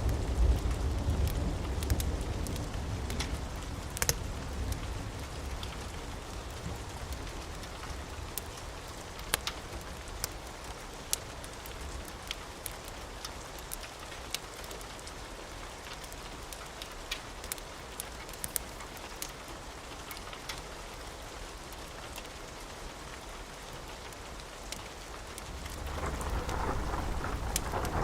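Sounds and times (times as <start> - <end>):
steady rain: 0.0 - 28.0
wood fire crackling: 0.0 - 28.0
thunder rumble: 25.5 - 28.0.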